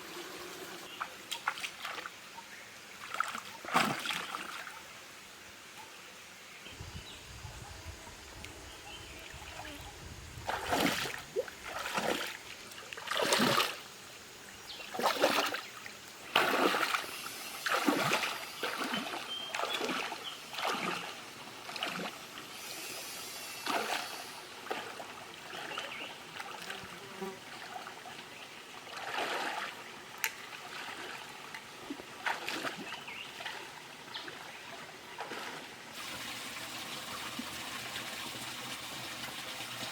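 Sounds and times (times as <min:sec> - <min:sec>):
water splashing in stream: 0:00.9 - 0:04.9, 0:10.4 - 0:13.9, 0:14.8 - 0:22.6, 0:23.6 - 0:37.9.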